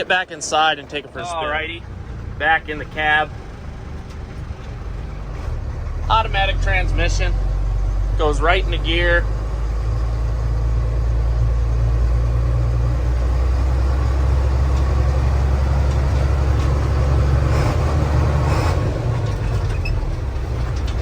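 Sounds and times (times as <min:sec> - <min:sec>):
truck diesel engine droning: 0:00.0 - 0:21.0.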